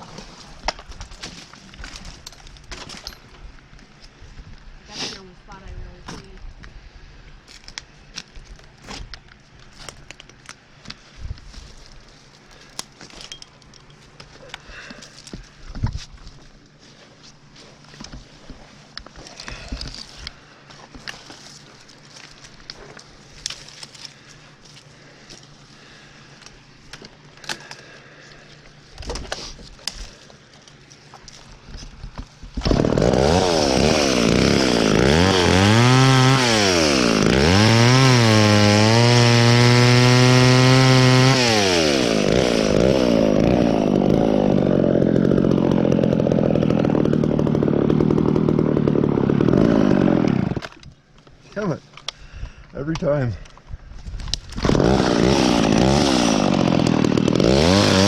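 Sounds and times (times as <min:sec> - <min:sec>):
chainsaw revving: 0:32.6 - 0:50.7, 0:54.6 - 0:58.0.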